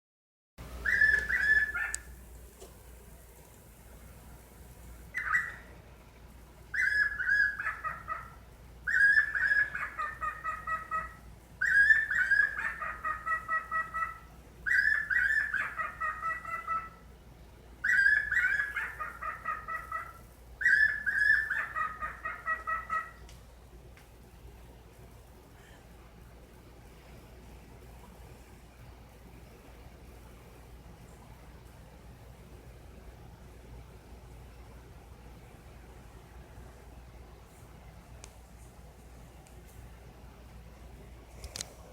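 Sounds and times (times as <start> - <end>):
bird calling in pulsing notes: 0.8 - 2.2, 5.1 - 5.8, 6.7 - 17.0, 17.8 - 23.3.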